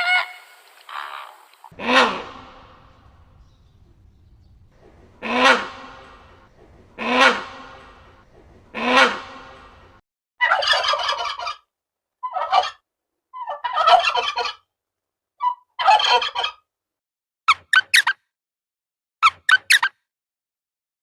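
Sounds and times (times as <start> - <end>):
turkey gobbling: 1.7 - 11.6, 13.4 - 14.5
short sharp high calls: 1.8 - 9.9.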